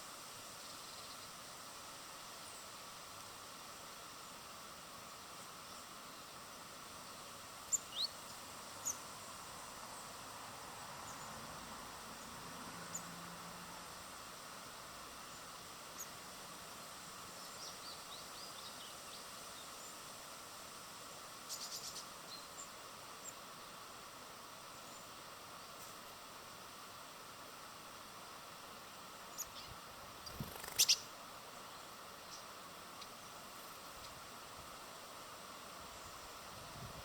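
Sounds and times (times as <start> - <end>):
steady outdoor hiss: 0.0 - 37.0
small birds chirping: 0.6 - 1.4, 5.4 - 10.2, 10.9 - 13.2, 15.2 - 16.2, 17.1 - 20.0, 21.4 - 23.4, 28.6 - 34.3.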